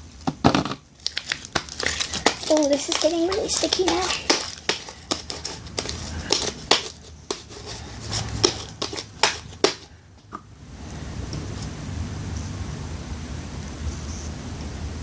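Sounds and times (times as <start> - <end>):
slime clicking and popping: 1.0 - 7.4.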